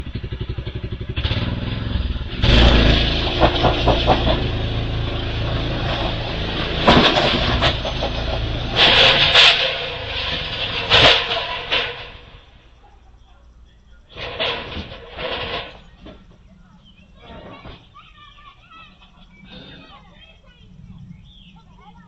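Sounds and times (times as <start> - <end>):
small engine revving: 0.0 - 12.4
rattling and clatter: 0.0 - 13.0, 14.0 - 18.2.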